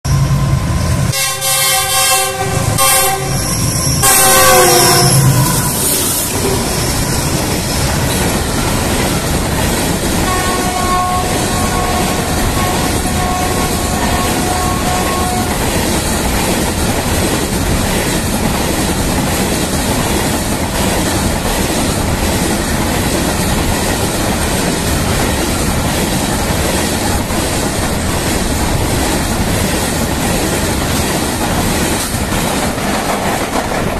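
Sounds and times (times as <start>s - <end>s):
freight train rolling past: 0.0s - 33.9s
locomotive horn blasts: 1.1s - 6.7s, 10.2s - 15.7s.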